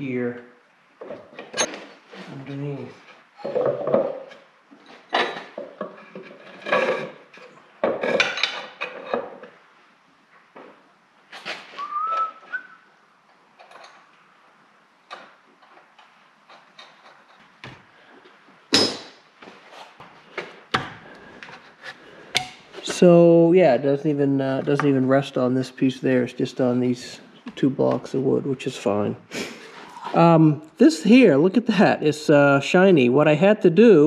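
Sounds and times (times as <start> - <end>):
knocks and scrapes on wood: 3.4 - 9.5
short rising whistle: 11.8 - 12.8.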